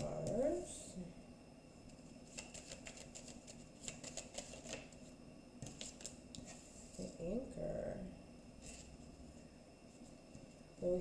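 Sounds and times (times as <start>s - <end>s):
cards clicking and tapping: 2.3s - 5.0s, 5.6s - 6.5s.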